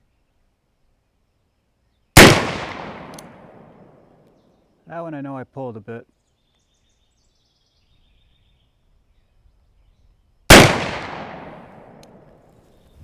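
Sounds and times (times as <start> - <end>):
revolver gunshot: 2.2 - 4.0, 10.5 - 12.4.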